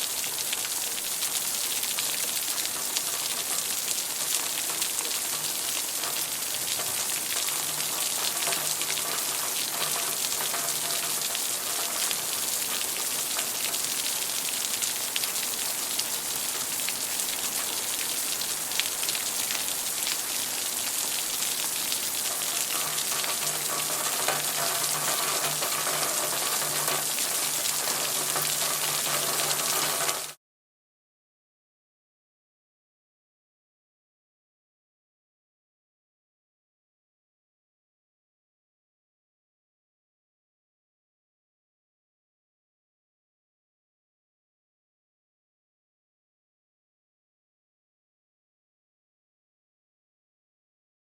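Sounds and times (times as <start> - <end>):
steady rainfall: 0.0 - 30.4.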